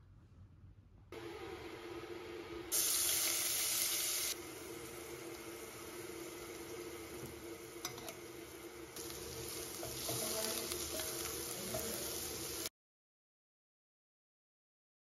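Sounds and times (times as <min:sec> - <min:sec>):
food sizzling in hot oil: 0:01.2 - 0:12.7
wooden spoon stirring and scraping: 0:09.0 - 0:12.4.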